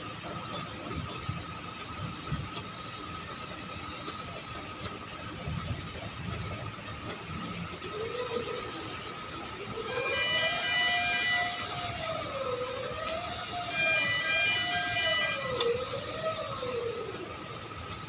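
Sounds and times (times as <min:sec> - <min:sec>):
wailing warning siren: 0:07.8 - 0:18.0
chord-like horn tone: 0:09.9 - 0:11.8, 0:13.7 - 0:15.6.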